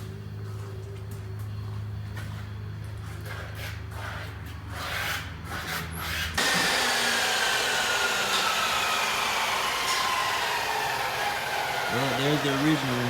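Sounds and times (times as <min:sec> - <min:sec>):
power tool running: 0:06.4 - 0:13.0.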